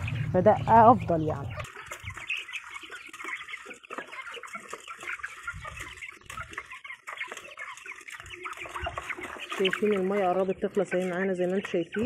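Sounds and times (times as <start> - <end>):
chicks peeping and chirping: 0.0 - 12.0.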